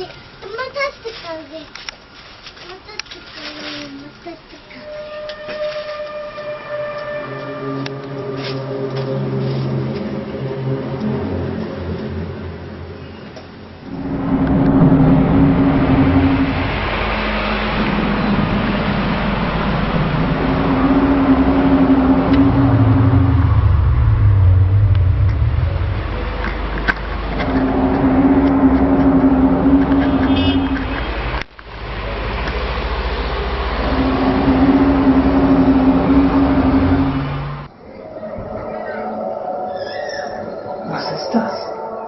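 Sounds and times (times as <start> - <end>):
long low drawn-out tones: 4.7 - 42.0
steady low rumble: 5.6 - 42.0.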